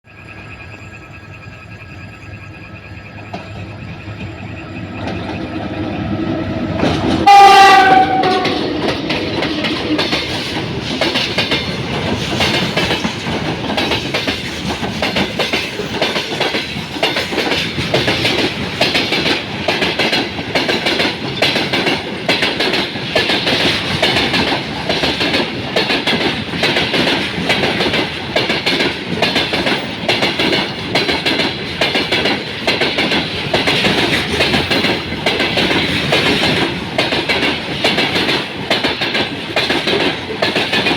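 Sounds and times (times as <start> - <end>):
train wheels clicking over rail joints: 3.2 - 40.9
locomotive horn: 6.2 - 9.0.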